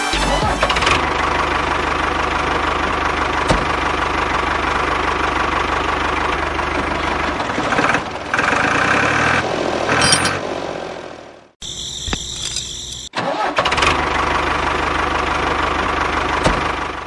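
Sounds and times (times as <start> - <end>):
engine knocking like diesel: 0.5 - 9.4, 13.2 - 17.0.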